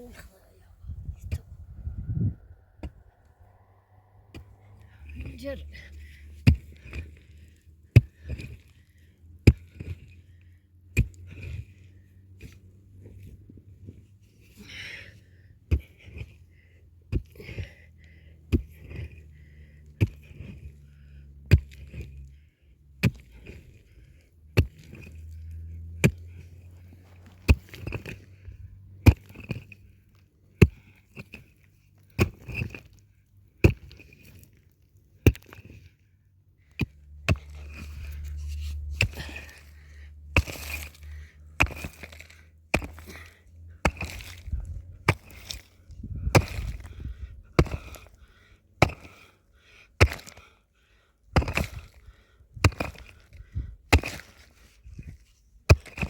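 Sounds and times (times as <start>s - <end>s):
low hum: 0.0s - 7.6s, 36.1s - 49.1s
hand tool striking hard material: 40.3s - 46.9s, 47.6s - 48.1s, 48.8s - 49.2s, 50.0s - 50.4s, 51.3s - 52.0s, 52.6s - 53.3s, 53.9s - 54.5s, 55.7s - 56.0s.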